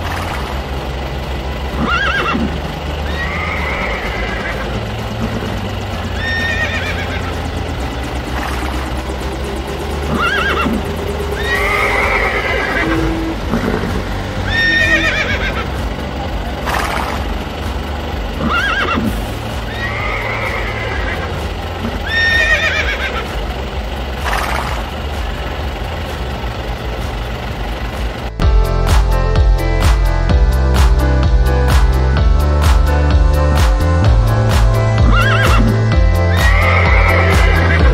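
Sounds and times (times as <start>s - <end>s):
steady low drone: 0.0s - 37.9s
horse neighing: 1.8s - 4.6s, 6.2s - 7.4s, 10.1s - 10.8s, 11.4s - 15.7s, 18.4s - 19.1s, 19.7s - 21.4s, 22.0s - 23.3s, 35.0s - 35.7s, 36.4s - 37.9s.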